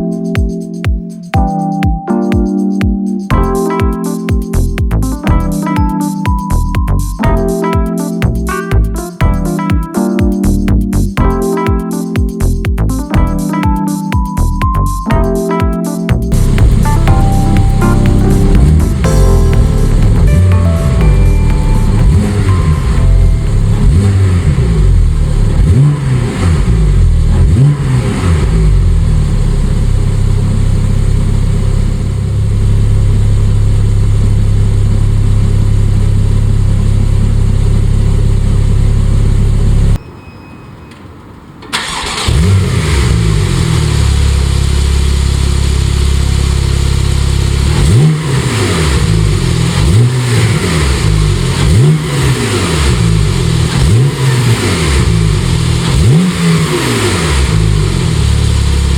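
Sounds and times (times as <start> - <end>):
car engine revving: 16.3 - 40.0, 41.7 - 58.9.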